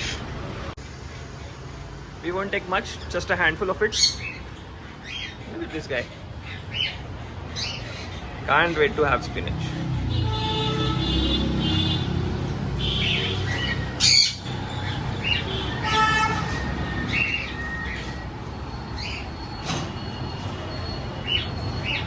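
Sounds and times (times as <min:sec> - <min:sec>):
harsh bird squawk: 0:12.8 - 0:18.2
cockatiels chirping: 0:13.0 - 0:15.7, 0:18.9 - 0:19.5, 0:21.2 - 0:22.0.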